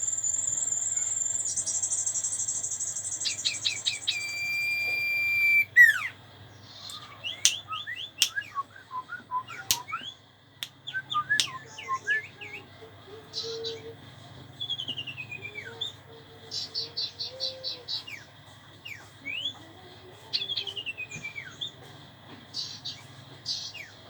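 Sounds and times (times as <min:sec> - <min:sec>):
bird whistling: 0:03.2 - 0:06.2
bird chirps and clicks: 0:03.9 - 0:06.1.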